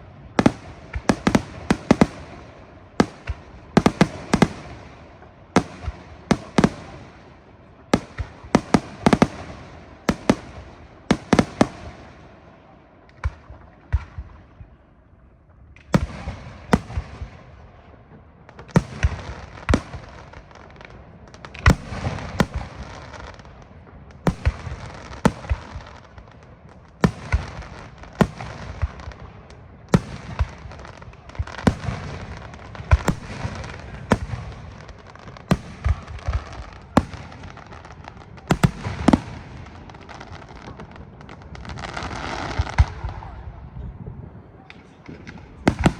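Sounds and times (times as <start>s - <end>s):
firework crackling: 0.0s - 12.4s, 18.6s - 43.5s, 44.8s - 45.9s.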